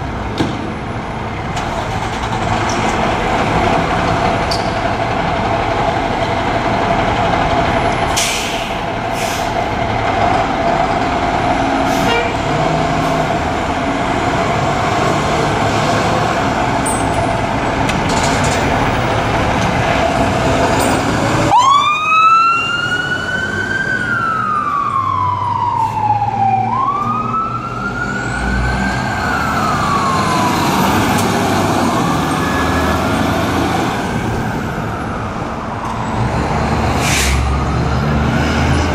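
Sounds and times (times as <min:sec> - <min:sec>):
fire truck engine: 0:00.0 - 0:38.9
street noise: 0:00.0 - 0:38.9
fire truck siren wailing: 0:08.8 - 0:17.8, 0:18.8 - 0:38.9.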